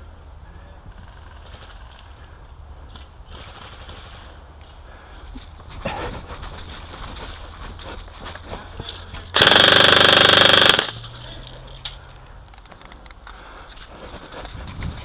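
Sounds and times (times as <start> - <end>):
airsoft rifle full-auto burst: 9.4 - 11.0.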